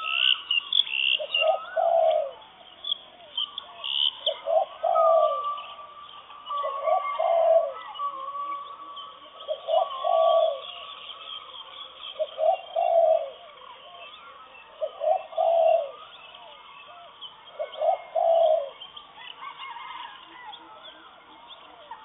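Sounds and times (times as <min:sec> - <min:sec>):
bird repeating low call: 0:00.0 - 0:11.0
faint bird chirps: 0:00.0 - 0:22.0.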